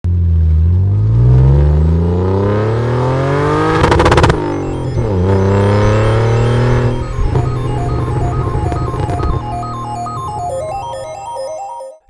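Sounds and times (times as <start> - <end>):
vehicle engine revving: 0.8 - 8.9.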